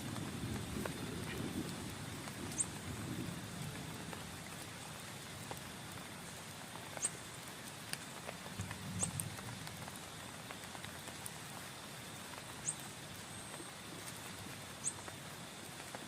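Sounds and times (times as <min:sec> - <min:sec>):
heavy rain on a tent: 0:00.0 - 0:16.0.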